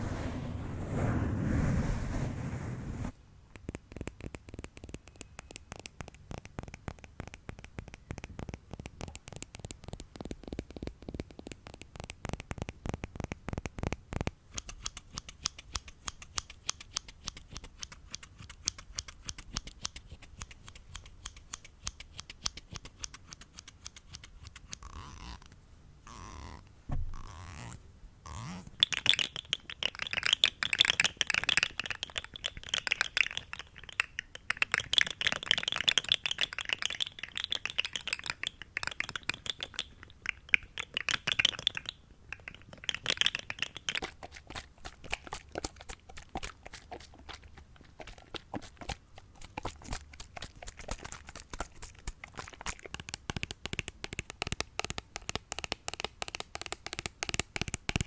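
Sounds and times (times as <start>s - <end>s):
rapid crackling and clicking: 28.8s - 58.0s.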